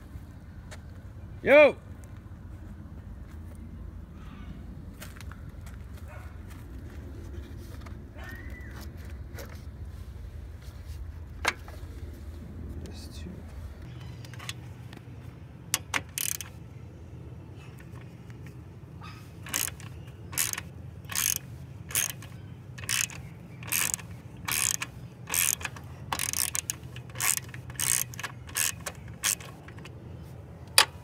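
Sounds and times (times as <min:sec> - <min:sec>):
hand ratchet clicking: 0:14.3 - 0:14.6, 0:15.7 - 0:16.6, 0:19.4 - 0:29.9.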